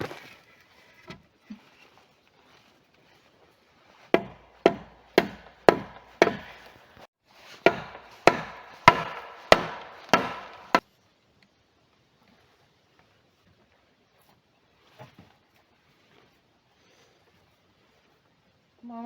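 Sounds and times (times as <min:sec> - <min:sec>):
axe chopping wood: 0:04.2 - 0:07.0, 0:07.6 - 0:10.8.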